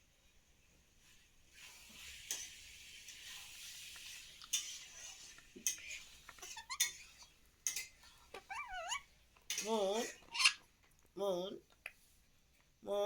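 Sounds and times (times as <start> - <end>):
light hiss: 0.0 - 8.5
parakeet squeak: 6.4 - 7.3, 8.3 - 9.1, 10.0 - 10.6.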